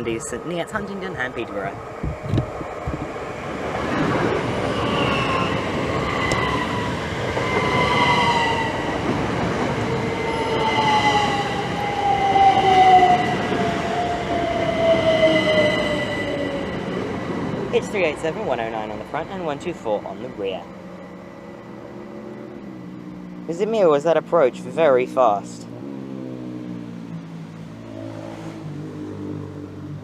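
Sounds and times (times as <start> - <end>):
wheels rumbling on rail: 0.0 - 30.0
traction motor whine: 2.0 - 17.8
electric train braking to a stop: 3.9 - 17.7.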